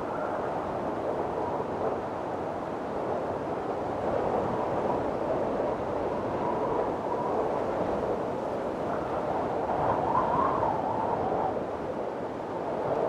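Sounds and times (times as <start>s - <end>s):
strong wind blowing: 0.0s - 13.0s
wind whistling: 5.6s - 12.0s.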